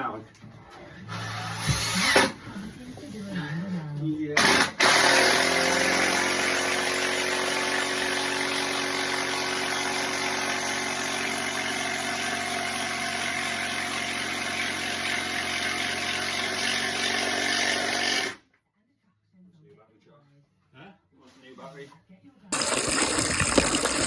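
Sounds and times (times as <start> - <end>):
power tool motor whirring: 1.1 - 2.4, 4.4 - 18.4.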